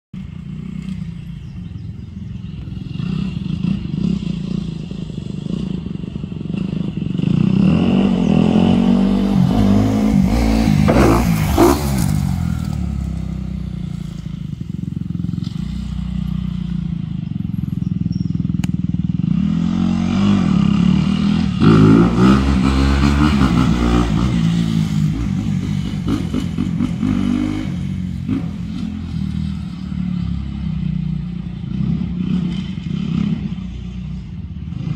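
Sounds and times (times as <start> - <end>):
dirt bike engine revving: 2.8 - 16.8, 17.6 - 30.9.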